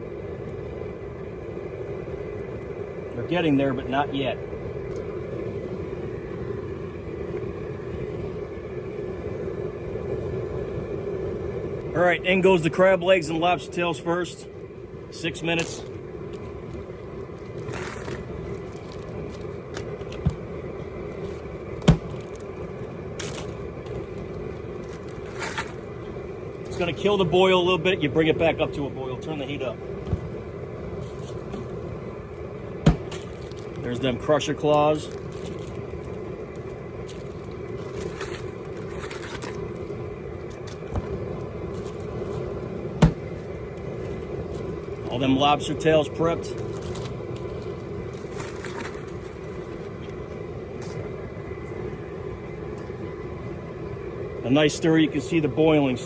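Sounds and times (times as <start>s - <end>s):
propane burner running: 0.0s - 56.0s
sharp knocks: 32.8s - 33.2s, 43.0s - 43.2s.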